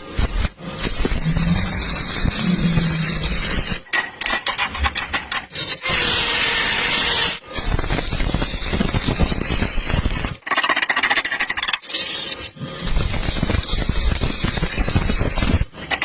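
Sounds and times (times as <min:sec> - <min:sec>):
arc welding crackling hiss: 0:00.0 - 0:03.9, 0:05.9 - 0:10.4, 0:12.8 - 0:15.7
scratchy welding strokes: 0:00.0 - 0:03.9, 0:04.9 - 0:10.5, 0:11.8 - 0:16.0.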